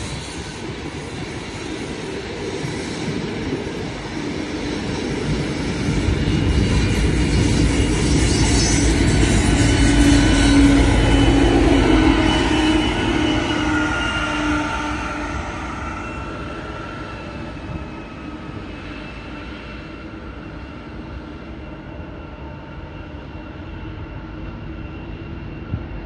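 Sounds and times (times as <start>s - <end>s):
train wheel noise: 0.0s - 26.0s
locomotives rumbling past: 3.1s - 18.5s.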